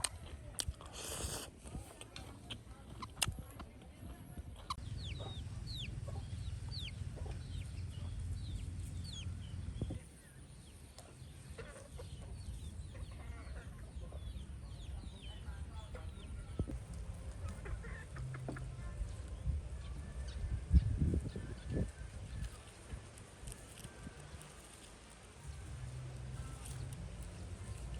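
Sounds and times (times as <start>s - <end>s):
chickens clucking: 0.0s - 27.9s
chicks peeping: 4.6s - 25.6s.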